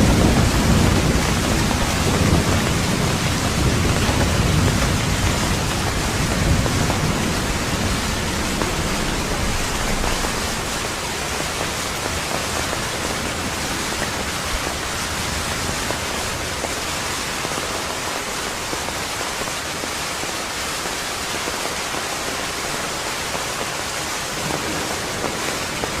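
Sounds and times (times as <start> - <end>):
thunder rumble: 0.0 - 16.8, 24.4 - 26.0
heavy rain: 0.0 - 26.0.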